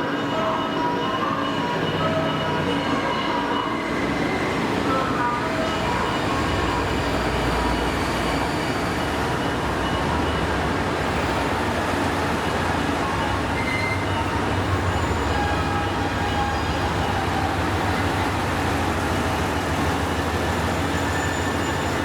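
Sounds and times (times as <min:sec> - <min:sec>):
train running on rails: 0:00.0 - 0:22.0
faint wheel squeals: 0:07.0 - 0:09.3, 0:19.5 - 0:22.0.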